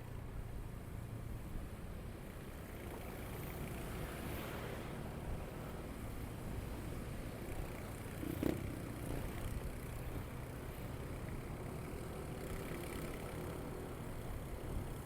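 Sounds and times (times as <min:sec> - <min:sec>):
road noise: 0:00.0 - 0:15.0
motorcycle engine running: 0:07.4 - 0:15.0.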